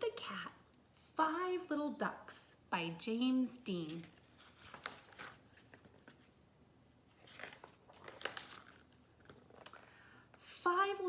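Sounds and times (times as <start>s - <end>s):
book page rustling: 3.6s - 11.0s.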